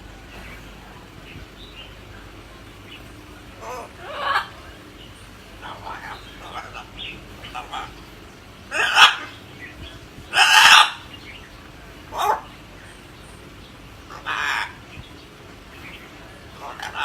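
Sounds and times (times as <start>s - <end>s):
parrot squawking: 0.0s - 9.5s, 10.3s - 11.2s, 12.0s - 12.6s, 14.0s - 15.1s, 16.4s - 17.0s.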